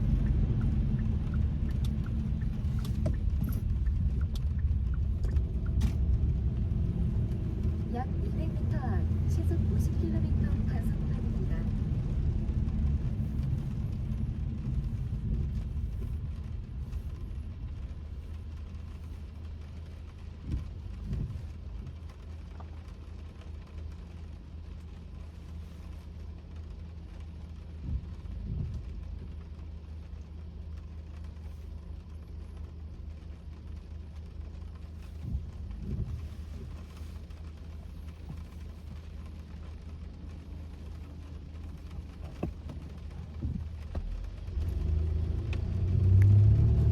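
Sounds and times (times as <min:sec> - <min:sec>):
road and engine hum: 0:00.0 - 0:46.9
windshield wipers sweeping: 0:00.0 - 0:46.9.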